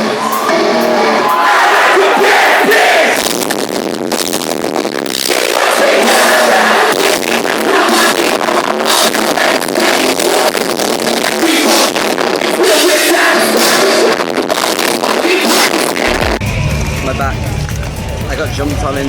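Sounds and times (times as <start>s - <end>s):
live metal band playing: 10.8s - 19.0s
drum hits: 15.6s - 19.0s.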